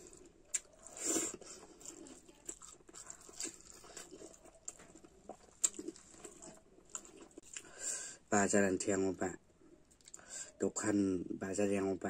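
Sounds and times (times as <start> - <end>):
person chewing with lip smacks: 0.0 - 7.7
fingers squishing in food: 0.0 - 7.8.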